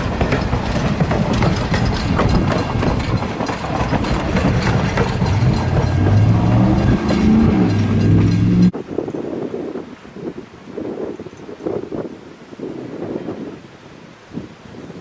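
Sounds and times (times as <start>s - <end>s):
low pitched drone: 0.0s - 8.7s
train wheels clicking over rail joints: 0.0s - 8.7s
wind noise: 0.0s - 15.0s.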